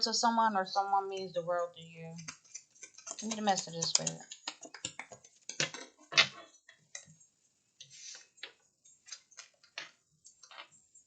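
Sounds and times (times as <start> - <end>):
cards rustling: 2.2 - 6.5
cards clicking and tapping: 2.2 - 7.1.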